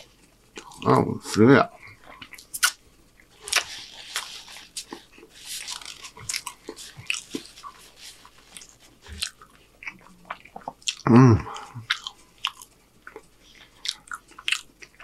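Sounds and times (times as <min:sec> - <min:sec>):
paper wrapper crinkling: 0:03.4 - 0:09.0.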